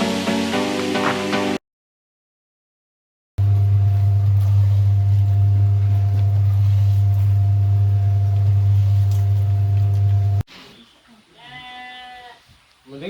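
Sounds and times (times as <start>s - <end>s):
feed mixer machine humming: 3.4s - 10.4s.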